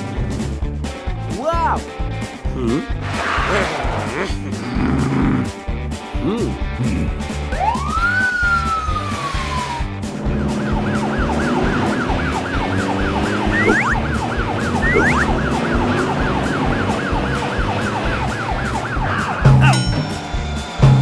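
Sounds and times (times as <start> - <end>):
short upward whistles: 7.6 - 9.9, 10.5 - 15.6
cartoon police siren warbling: 7.6 - 19.8.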